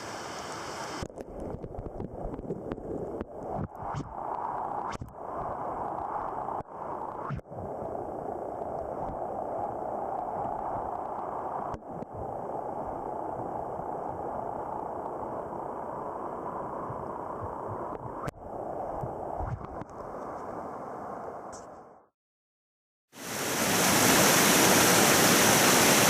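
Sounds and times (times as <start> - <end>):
stream water rushing over rocks: 0.0 - 1.5, 23.2 - 26.0.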